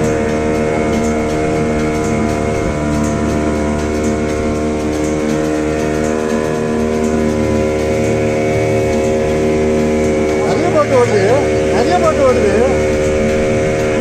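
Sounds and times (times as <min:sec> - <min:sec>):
motorboat engine droning: 0:00.0 - 0:14.0.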